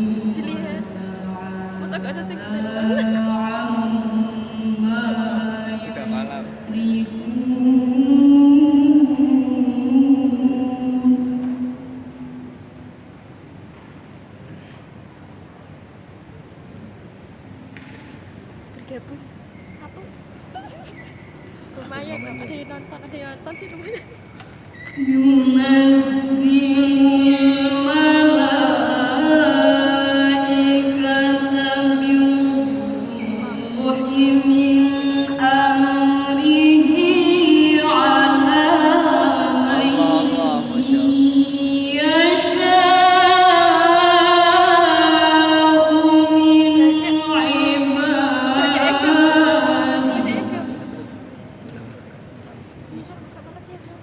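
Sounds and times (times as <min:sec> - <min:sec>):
person reciting melodically: 0:00.0 - 0:11.5, 0:25.0 - 0:50.9.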